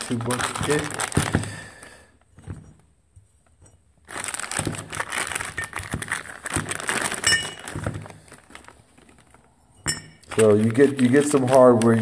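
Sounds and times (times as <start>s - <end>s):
plastic bag crinkling: 0.0s - 2.1s, 4.0s - 12.0s
metal screws clinking in a bag: 7.0s - 7.8s.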